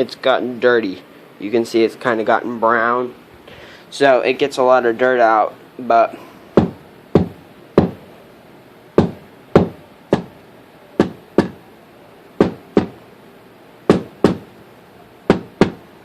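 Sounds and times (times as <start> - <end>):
filter knocked against hard surface: 11.0 - 11.6, 12.4 - 13.0.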